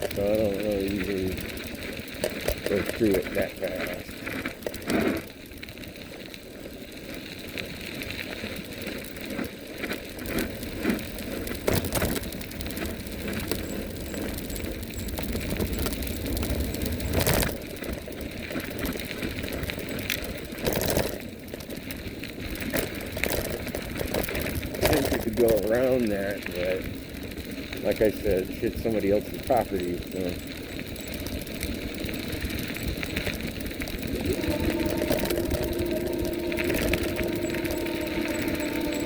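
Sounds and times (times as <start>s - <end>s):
rumble of wind and tyres: 0.0s - 39.0s
bike knocks and rattles: 11.5s - 21.9s.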